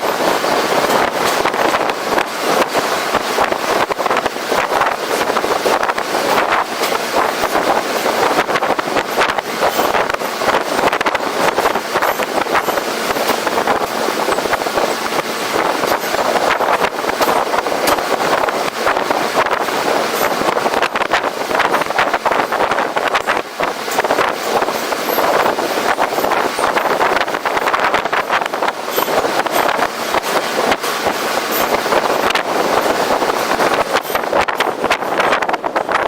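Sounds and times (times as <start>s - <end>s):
subway train running noise: 0.0s - 36.0s
wind buffeting microphone: 0.0s - 36.0s.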